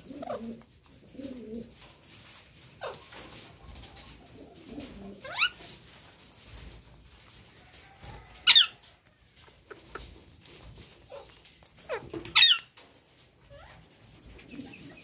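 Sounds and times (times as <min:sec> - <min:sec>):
faint parrot chirps: 0:00.0 - 0:01.8, 0:07.7 - 0:15.0
parrot squeaky calls: 0:11.8 - 0:12.7.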